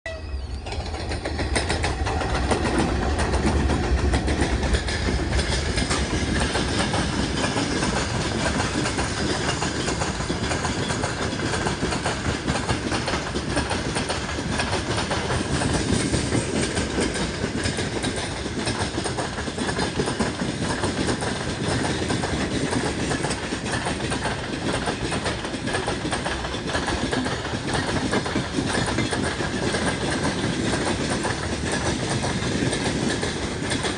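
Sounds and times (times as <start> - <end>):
locomotive engine rumble: 0.1 - 8.4
train wheels clattering on rails: 0.4 - 33.9.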